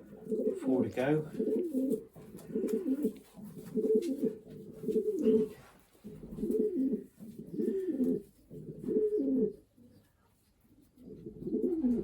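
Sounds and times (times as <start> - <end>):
pigeons cooing: 0.0 - 10.1, 10.8 - 12.0.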